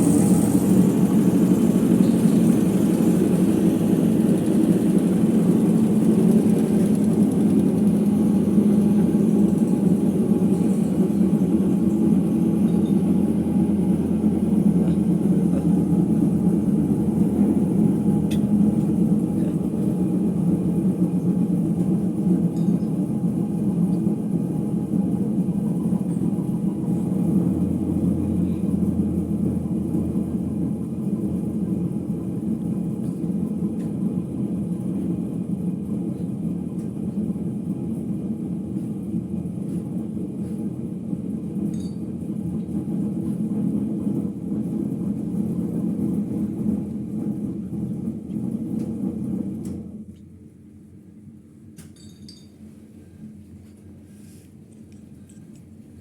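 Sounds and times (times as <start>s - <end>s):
washing machine spin rumble: 0.0s - 56.0s.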